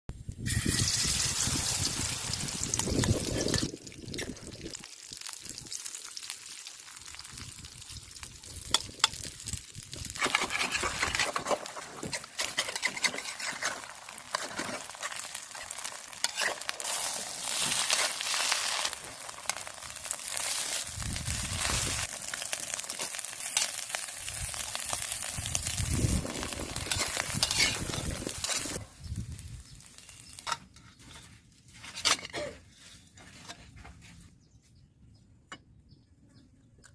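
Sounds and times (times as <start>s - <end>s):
pancake sizzling in hot oil: 0.3s - 31.2s
utensil scraping a pan: 10.1s - 19.6s, 26.4s - 28.8s, 30.3s - 34.1s.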